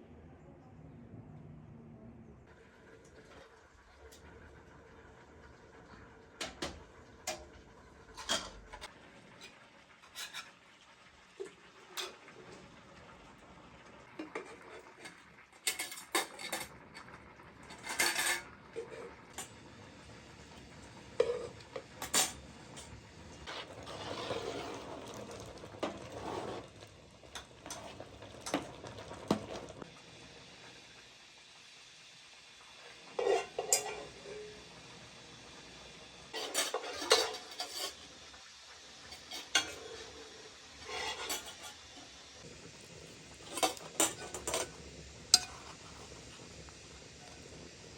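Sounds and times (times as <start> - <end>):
pots and utensils clinking: 6.4 - 10.6, 11.4 - 12.6, 14.2 - 19.6, 20.6 - 29.8, 33.0 - 34.7, 36.3 - 38.1, 39.0 - 42.2, 43.3 - 46.4
scraping or stirring in a pot: 8.2 - 10.8, 14.2 - 19.5, 21.0 - 29.8, 33.0 - 34.6, 36.3 - 38.1, 39.0 - 42.2, 42.8 - 46.5.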